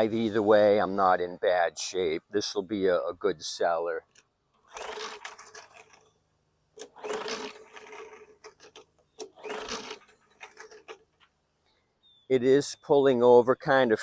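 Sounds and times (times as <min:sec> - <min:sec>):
recoil starter cord pulled: 0:04.1 - 0:06.2, 0:06.8 - 0:11.3
engine cranking without firing: 0:04.6 - 0:06.2, 0:06.8 - 0:11.2.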